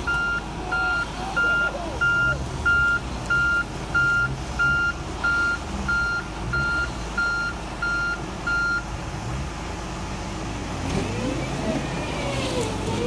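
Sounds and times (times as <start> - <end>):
engine running: 0.0 - 13.0
reversing alarm beeping: 0.1 - 8.8.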